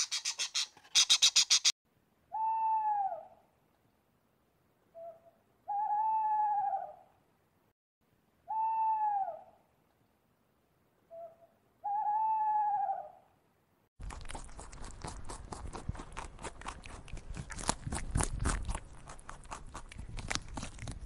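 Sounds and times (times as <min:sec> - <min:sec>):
owl hooting: 0:05.0 - 0:07.1, 0:08.5 - 0:09.6, 0:11.1 - 0:13.3.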